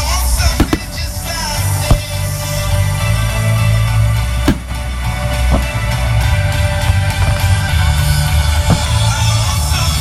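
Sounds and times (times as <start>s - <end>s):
music playing: 0.0s - 10.0s
fireworks bangs: 0.1s - 2.7s, 4.4s - 6.2s, 8.4s - 9.7s.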